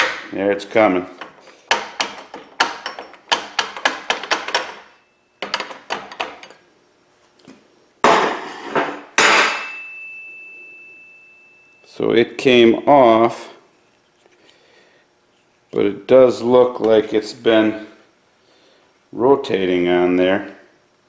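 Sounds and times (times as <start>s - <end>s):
hard hammer blows with metallic ring: 9.2s - 11.8s.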